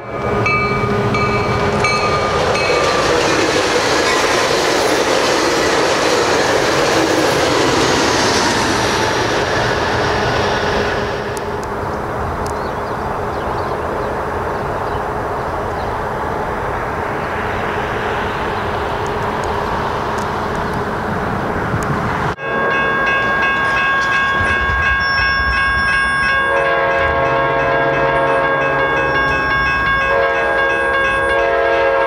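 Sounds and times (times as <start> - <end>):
crossing warning bell ringing: 0.0 - 6.4, 22.4 - 32.0
passing train rumble: 0.0 - 32.0
train horn: 26.4 - 32.0.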